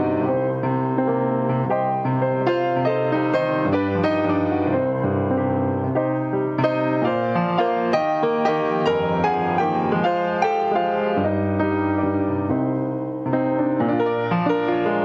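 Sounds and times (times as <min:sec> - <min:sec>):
slow gentle piano: 0:00.0 - 0:15.0.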